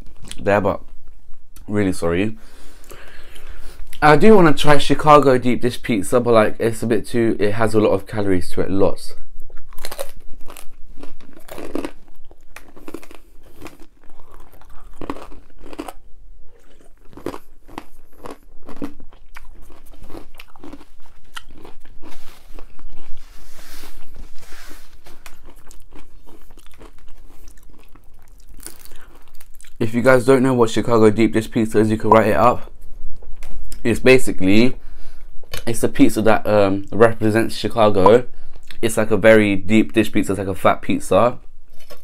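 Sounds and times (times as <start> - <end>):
chewing crisp pizza crust: 9.4 - 29.8.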